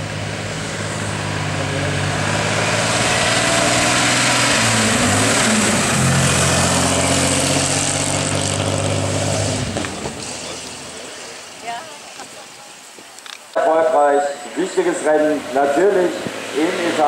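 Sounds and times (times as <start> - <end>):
racing car engine pulling away: 0.0 - 11.4, 14.9 - 17.0.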